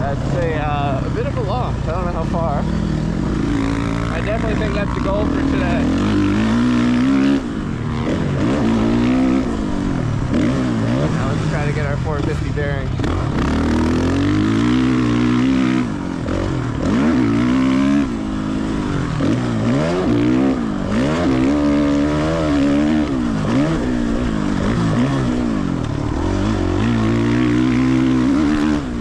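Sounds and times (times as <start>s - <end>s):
motocross bike engine revving: 0.0s - 29.0s.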